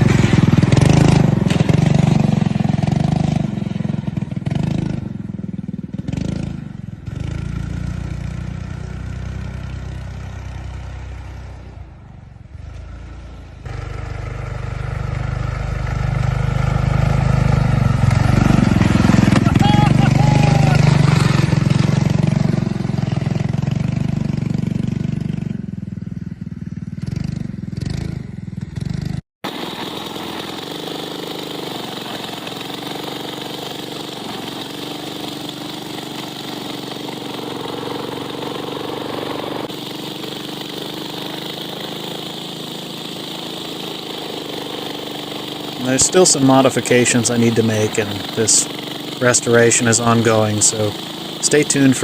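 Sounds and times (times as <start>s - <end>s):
single-cylinder engine running: 0.0s - 52.0s.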